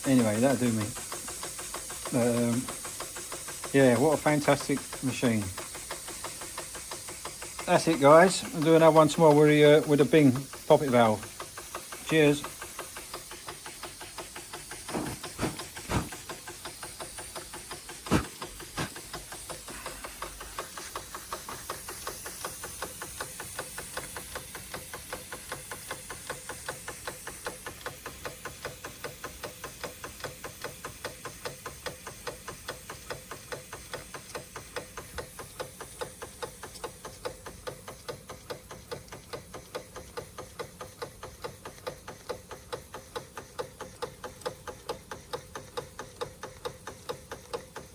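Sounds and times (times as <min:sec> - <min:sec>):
hiss of steam: 0:00.0 - 0:36.7
steam engine beating: 0:00.0 - 0:36.7
loud knocks: 0:14.9 - 0:16.2.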